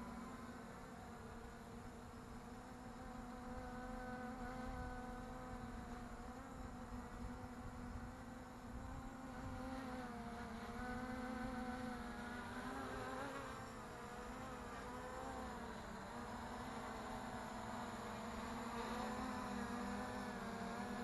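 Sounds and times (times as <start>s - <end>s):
quadcopter motors buzzing: 0.0s - 21.0s.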